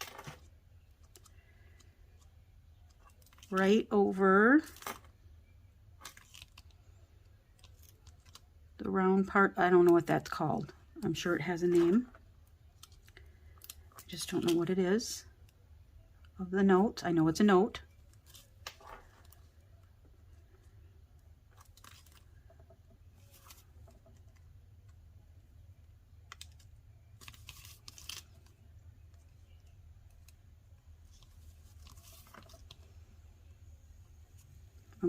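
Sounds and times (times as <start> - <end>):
paper crinkling and clicks: 0.0 - 3.7, 6.0 - 6.8, 7.5 - 8.5, 21.5 - 25.0, 26.3 - 30.4, 31.0 - 32.9
low steady hum: 0.0 - 35.0.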